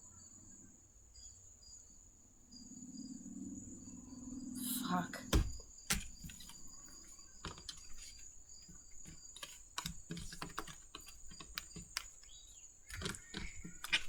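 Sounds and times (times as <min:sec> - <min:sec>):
cards being shuffled: 0:05.3 - 0:14.0.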